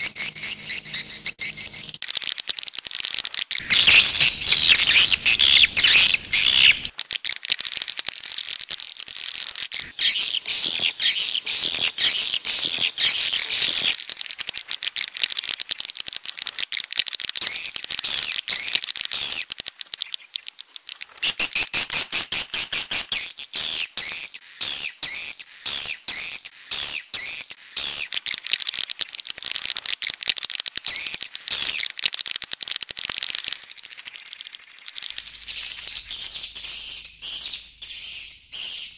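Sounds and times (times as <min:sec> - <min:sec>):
swiftlet twittering chirps: 0:00.0 - 0:02.0, 0:03.1 - 0:06.9, 0:09.6 - 0:15.2, 0:33.2 - 0:38.9.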